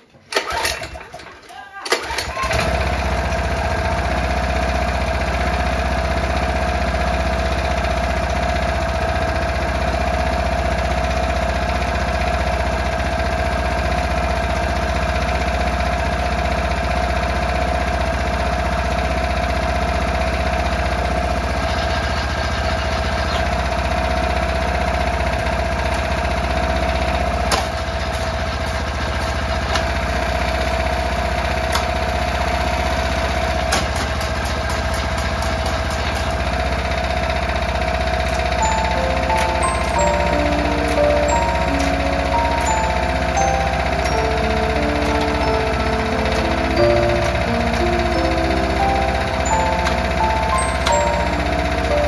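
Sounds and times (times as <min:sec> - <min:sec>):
small engine idling: 0:00.1 - 0:52.0.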